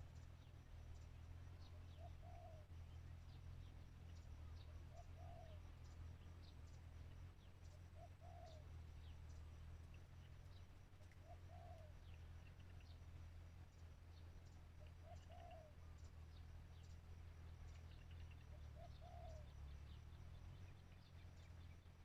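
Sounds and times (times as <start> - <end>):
low steady hum: 0.0 - 22.0
small birds chirping: 0.0 - 22.0
dove cooing: 2.0 - 2.6, 4.9 - 5.6, 8.0 - 8.7, 11.2 - 12.0, 15.0 - 15.8, 18.8 - 19.5.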